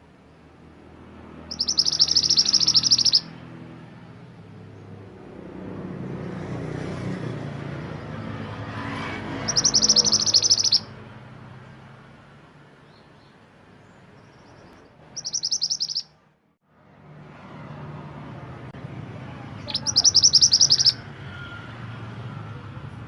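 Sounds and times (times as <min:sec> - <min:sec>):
songbird trilling: 0:01.5 - 0:03.3, 0:09.4 - 0:10.9, 0:14.2 - 0:16.2, 0:19.6 - 0:21.0.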